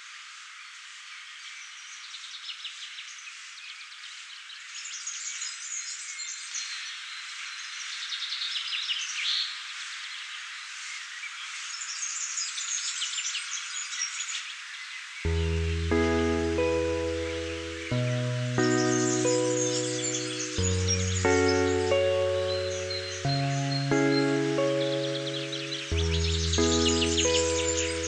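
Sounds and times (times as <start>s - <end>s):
birds chirping and twittering: 11.2s - 28.0s
background hiss: 15.3s - 28.0s.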